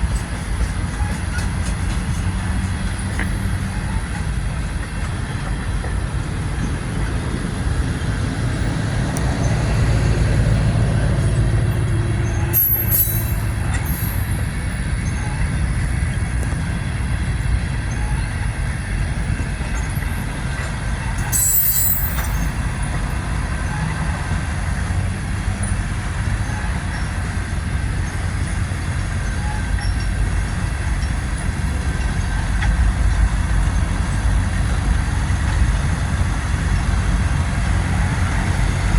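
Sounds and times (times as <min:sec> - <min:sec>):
train wheels rumbling on rail: 0:00.0 - 0:38.9
high wheel squeals: 0:08.6 - 0:16.0, 0:21.2 - 0:22.8, 0:25.6 - 0:32.3.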